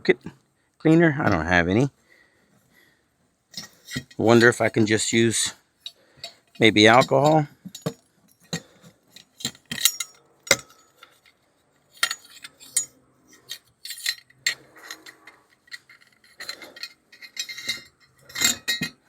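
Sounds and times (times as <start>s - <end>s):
small objects clinking and knocking: 3.5s - 19.0s.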